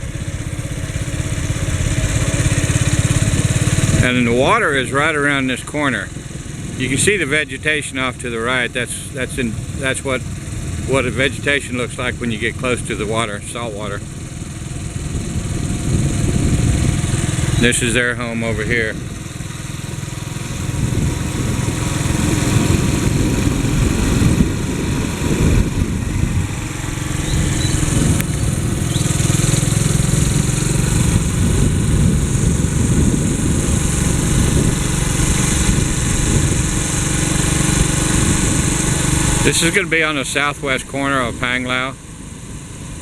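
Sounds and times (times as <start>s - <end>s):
motorcycle engine running: 0.0s - 43.0s
road noise: 0.0s - 43.0s
wind rushing: 14.8s - 17.9s, 20.4s - 39.6s.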